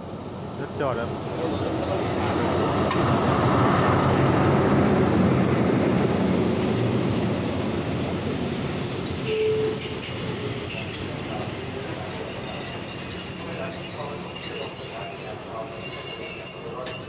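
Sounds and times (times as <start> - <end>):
locomotive engine rumble: 0.0 - 17.0
high steady brake squeal: 6.6 - 17.0.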